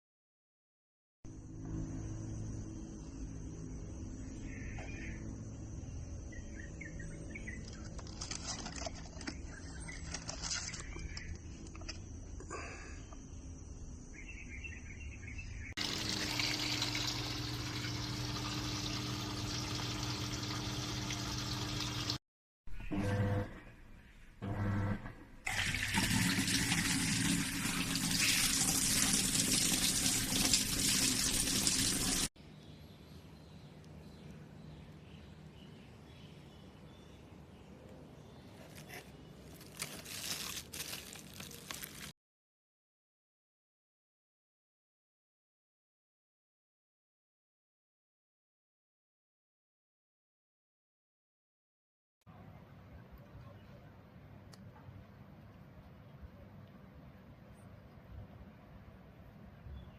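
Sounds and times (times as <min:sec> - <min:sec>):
birds chirping: 0:04.0 - 0:18.7
electrical hum: 0:15.8 - 0:22.2
water rushing through valve: 0:15.8 - 0:22.2, 0:25.5 - 0:32.3.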